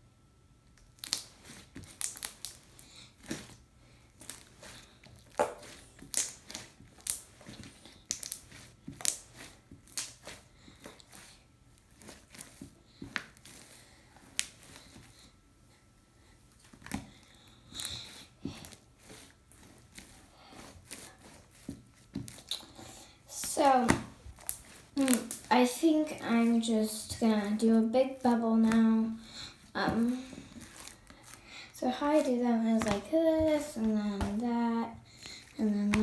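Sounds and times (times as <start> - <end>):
slime crackling and popping: 0.8 - 11.3, 11.9 - 14.9, 20.8 - 31.4, 32.1 - 36.0.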